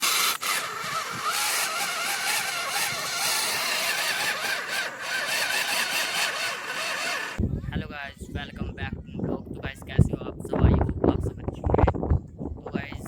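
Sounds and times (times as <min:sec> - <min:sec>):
engine running: 0:00.0 - 0:07.4.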